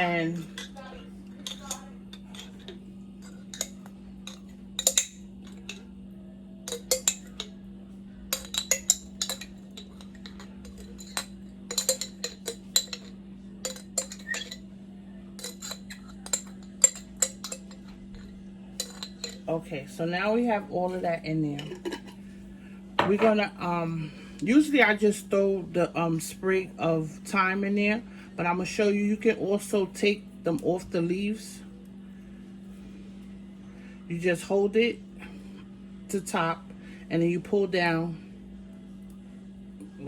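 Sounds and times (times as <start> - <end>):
metal utensil scraping a container: 8.3 - 14.6, 15.4 - 18.0.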